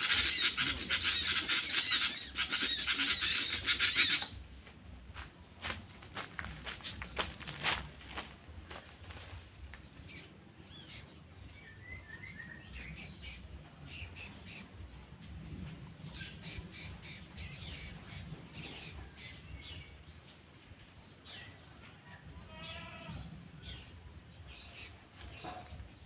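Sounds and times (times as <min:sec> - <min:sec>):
birds squawking and chirping: 0:00.0 - 0:26.0
leafy branches rustling: 0:04.4 - 0:09.9.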